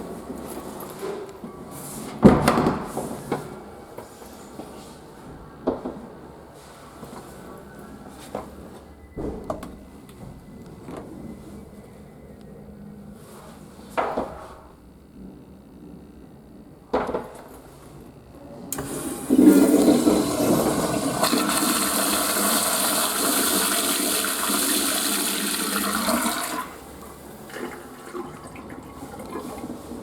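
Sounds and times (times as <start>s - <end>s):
toilet flush click: 18.7s - 29.9s
toilet water rushing: 18.7s - 30.0s.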